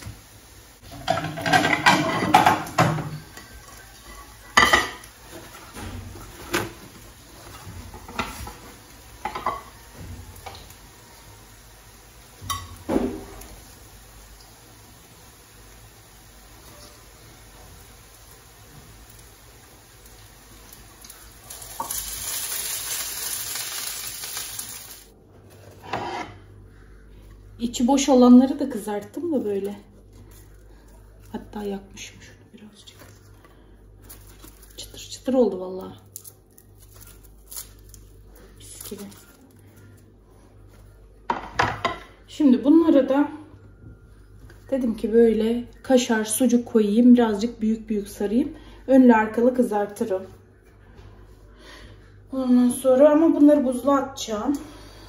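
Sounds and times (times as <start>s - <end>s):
hot oil sizzling in a pan: 0.0s - 25.2s
dishes and cutlery clattering: 0.9s - 5.6s.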